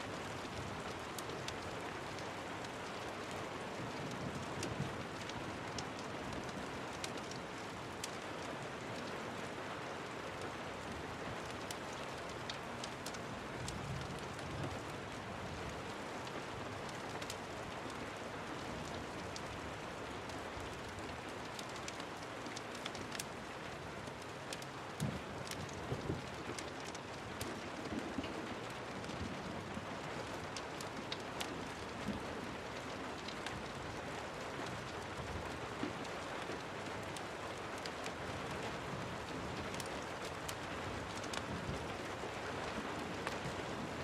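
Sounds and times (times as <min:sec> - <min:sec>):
rain falling: 0:00.0 - 0:44.0.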